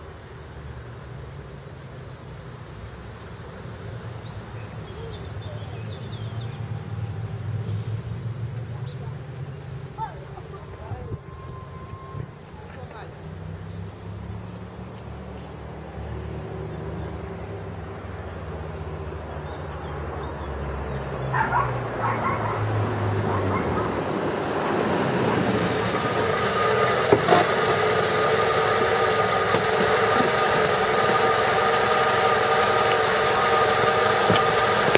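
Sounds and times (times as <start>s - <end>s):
car engine exhaust hum: 0.0s - 34.9s
higher steady tones: 24.0s - 34.9s.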